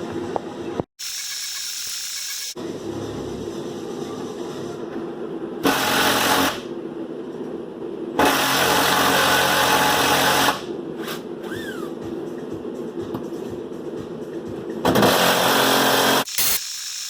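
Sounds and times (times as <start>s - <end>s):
impact wrench running: 1.0s - 2.6s, 15.0s - 17.0s.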